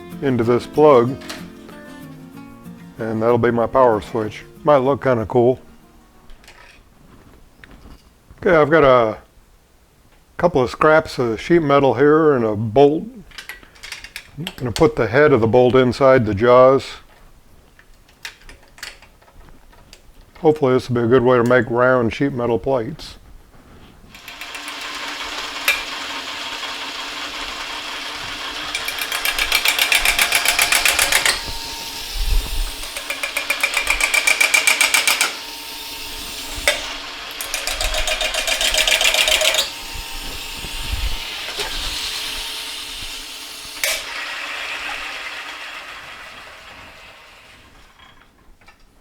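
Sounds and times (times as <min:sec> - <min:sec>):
cutting tool chattering: 0:24.2 - 0:44.3
metal lathe running: 0:24.2 - 0:47.6.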